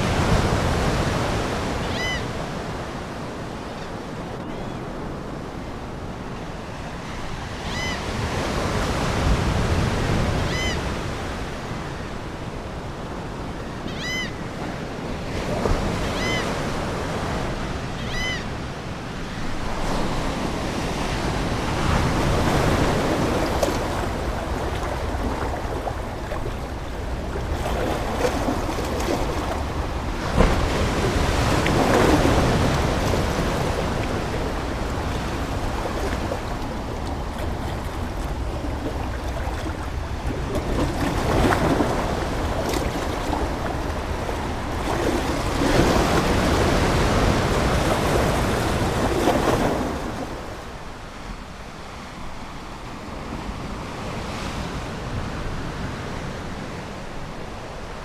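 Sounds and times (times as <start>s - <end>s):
ocean waves washing ashore: 0.0s - 58.0s
seagulls calling: 1.7s - 2.6s, 7.1s - 8.2s, 10.4s - 11.4s, 13.5s - 14.6s, 15.9s - 16.6s, 17.9s - 18.6s.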